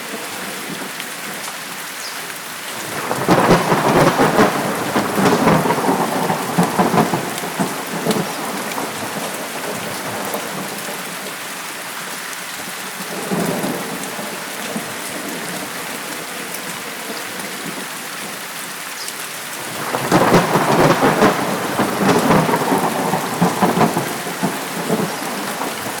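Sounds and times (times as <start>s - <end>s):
steady rain: 0.0s - 26.0s
rolling thunder: 2.8s - 11.2s, 19.6s - 26.0s.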